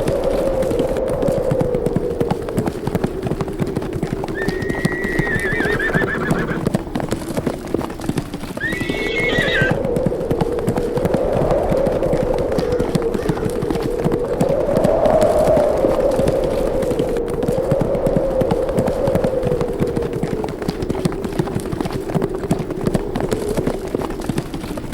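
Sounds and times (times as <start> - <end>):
horses galloping: 0.0 - 24.9
wind howling: 0.0 - 24.9
horse whinnying: 4.3 - 6.6, 8.6 - 9.8.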